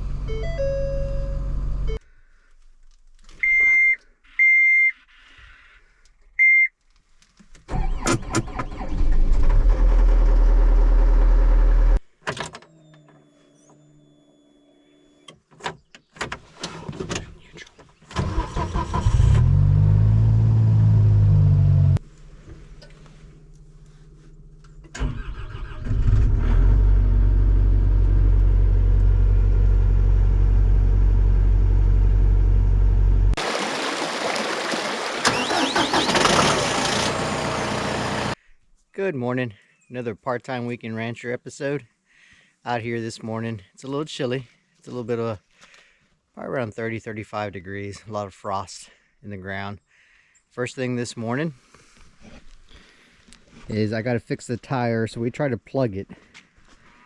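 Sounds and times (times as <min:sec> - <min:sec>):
short electronic beeps: 0:03.4 - 0:05.0
machinery engines running: 0:34.5 - 0:38.4.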